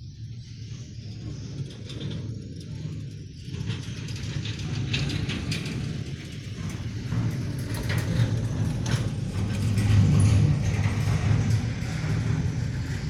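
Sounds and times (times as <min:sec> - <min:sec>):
truck body and load rattling: 0:03.8 - 0:13.0
truck engine drone: 0:06.0 - 0:13.0.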